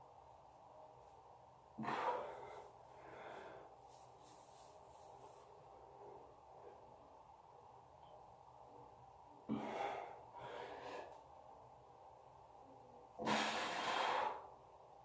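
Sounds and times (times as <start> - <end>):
person exhaling forcefully: 13.2 - 14.4.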